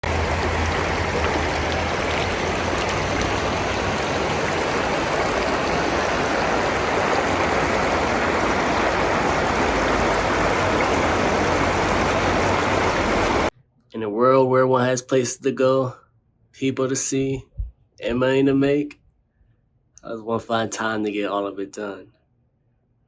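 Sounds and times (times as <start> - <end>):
running water rushing: 0.0 - 13.5.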